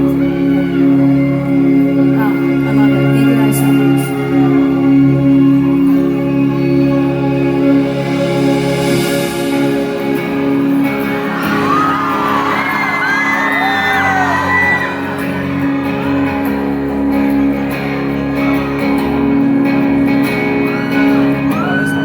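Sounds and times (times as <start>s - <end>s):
live band playing slow song: 0.0s - 22.0s
crowd screaming and whooping: 10.3s - 22.0s.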